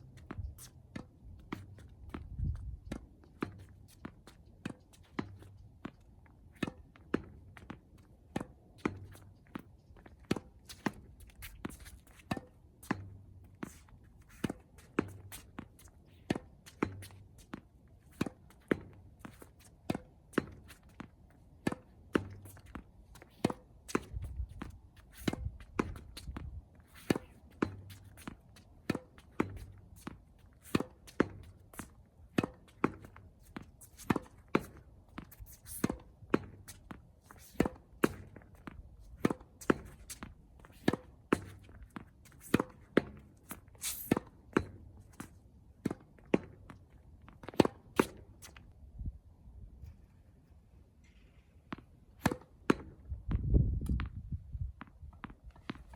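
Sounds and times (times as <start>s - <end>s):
tennis ball bouncing on court: 0.0s - 48.6s, 51.7s - 53.1s
tennis racket striking ball: 10.2s - 38.6s, 39.2s - 46.7s, 52.2s - 53.0s.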